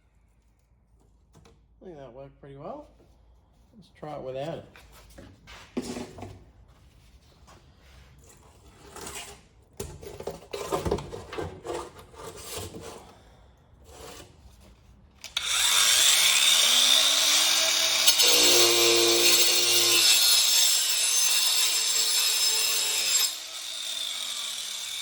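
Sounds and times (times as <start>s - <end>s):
angle grinder whining: 15.2s - 25.0s.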